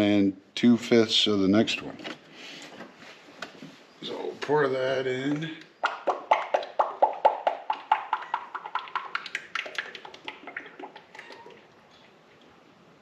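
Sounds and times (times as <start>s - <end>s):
oil glugging from jug: 5.9s - 12.2s.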